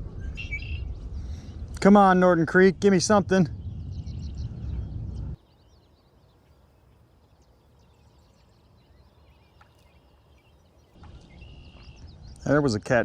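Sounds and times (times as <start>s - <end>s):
faint bird chirps: 0.1s - 1.6s, 3.5s - 12.7s
low rumble on microphone: 2.6s - 5.4s.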